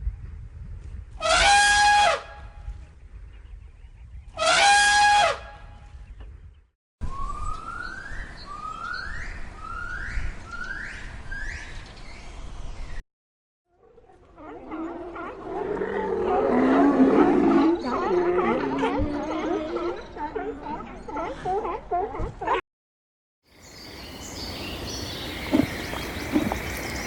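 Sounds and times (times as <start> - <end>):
high horn-like animal calls: 24.8 - 27.0.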